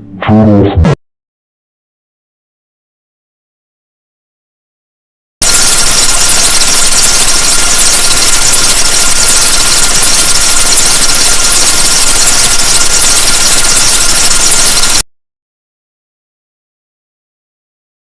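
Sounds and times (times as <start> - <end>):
harsh electronic static: 5.4 - 15.0.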